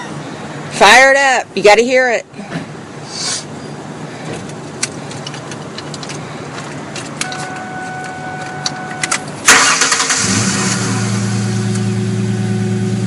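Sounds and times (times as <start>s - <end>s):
truck engine starting and idling: 4.4s - 13.0s.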